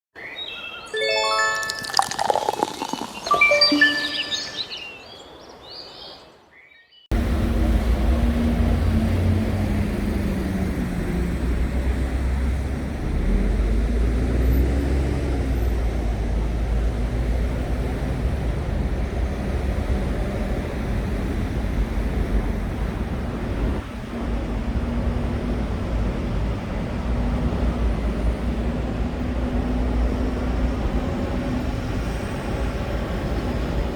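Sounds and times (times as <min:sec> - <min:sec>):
chime jingle: 0:00.9 - 0:05.0
street traffic rumble: 0:07.1 - 0:33.9.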